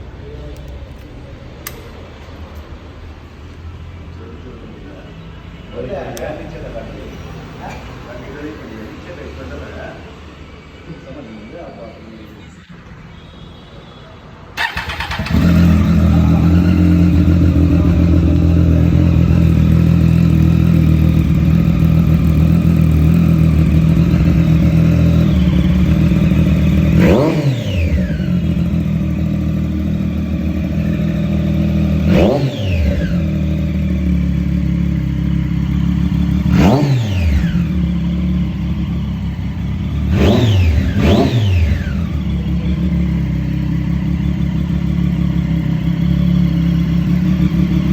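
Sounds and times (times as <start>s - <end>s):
motorcycle engine idling and revving: 14.6s - 47.9s.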